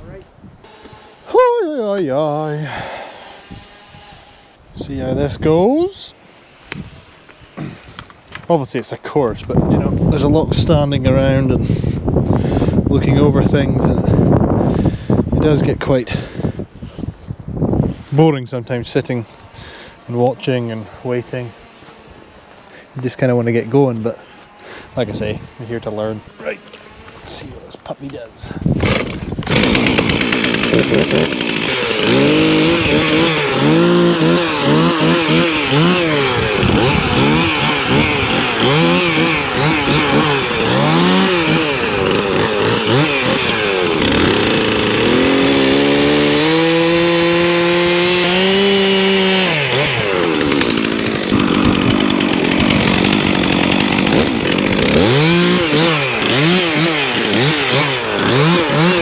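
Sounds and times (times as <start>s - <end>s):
chainsaw revving: 0.6s - 4.4s, 19.6s - 22.2s, 23.1s - 27.5s, 28.7s - 59.0s.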